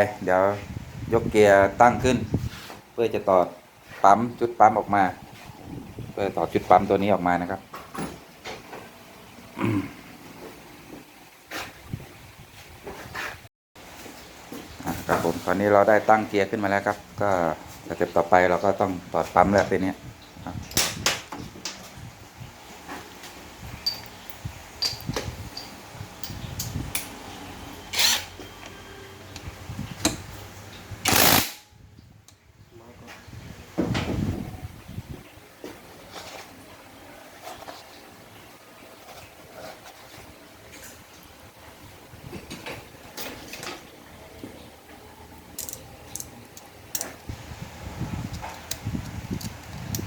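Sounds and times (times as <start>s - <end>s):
tools clicking and knocking on metal: 23.8s - 27.2s, 45.6s - 47.3s.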